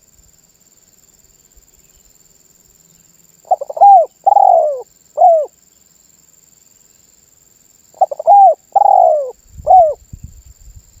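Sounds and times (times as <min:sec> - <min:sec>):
dove cooing: 0:03.5 - 0:05.5, 0:08.0 - 0:10.0.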